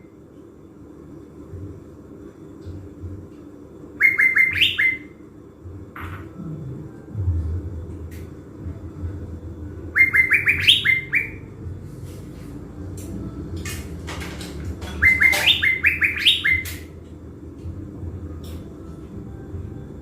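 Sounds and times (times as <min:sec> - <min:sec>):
songbird singing rapid rising notes: 0:09.9 - 0:11.6.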